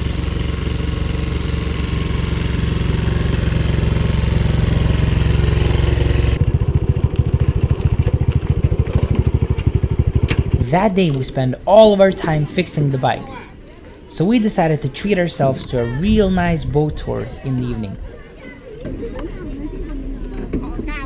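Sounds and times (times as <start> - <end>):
motorbike engine running: 0.0 - 13.2.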